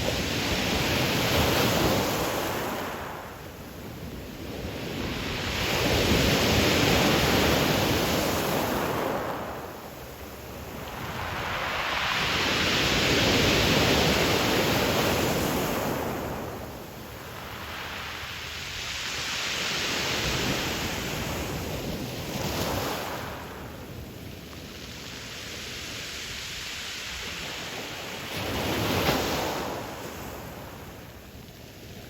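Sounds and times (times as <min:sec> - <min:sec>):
waves breaking on pebble beach: 0:24.6 - 0:30.9.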